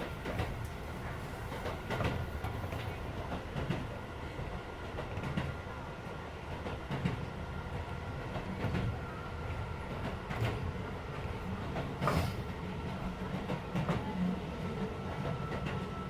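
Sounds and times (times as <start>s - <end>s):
clacks over rail joints: 0.0s - 4.0s
train wheels rumbling on rails: 0.0s - 16.0s.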